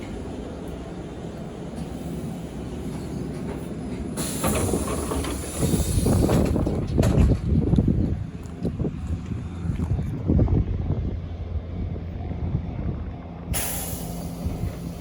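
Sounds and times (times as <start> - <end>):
train rumbling: 0.0 - 15.0
air hiss: 4.2 - 6.5, 13.6 - 15.0.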